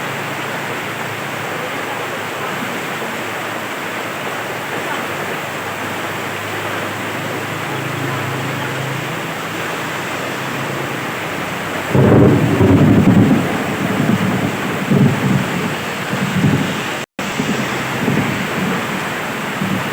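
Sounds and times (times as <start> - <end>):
heavy rain: 0.0 - 19.9
low rumble of thunder: 10.6 - 19.9.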